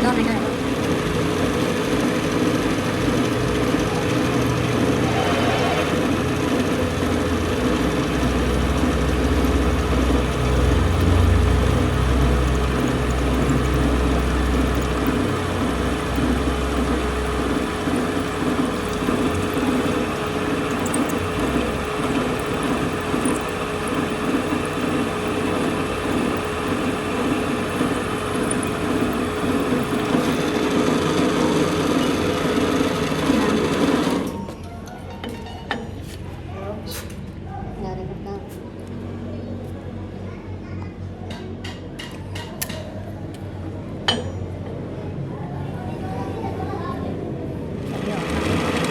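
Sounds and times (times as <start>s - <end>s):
workshop machinery humming: 0.0s - 48.9s.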